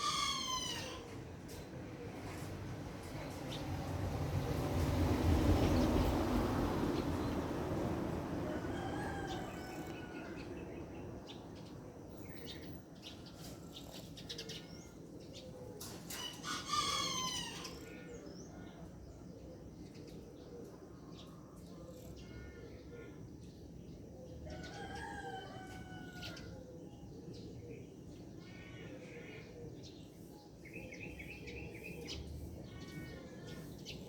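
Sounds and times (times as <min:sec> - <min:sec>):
rooster crowing: 0:00.0 - 0:01.1, 0:08.4 - 0:10.6, 0:16.2 - 0:17.9, 0:24.5 - 0:26.5.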